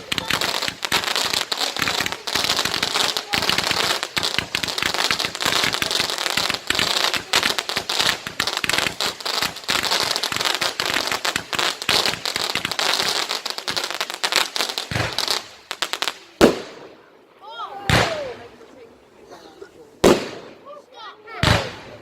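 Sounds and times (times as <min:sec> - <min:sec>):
fireworks crackling: 0:00.0 - 0:19.1, 0:19.9 - 0:22.0
loud firework bang: 0:14.9 - 0:15.5.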